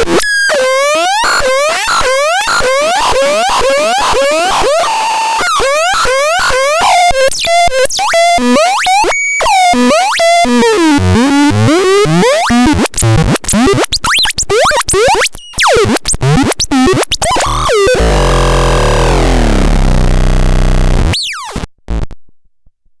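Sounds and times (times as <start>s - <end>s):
electronic bleeps and chirps: 12.2s - 22.0s
buzzing synthesizer noise: 15.0s - 22.2s.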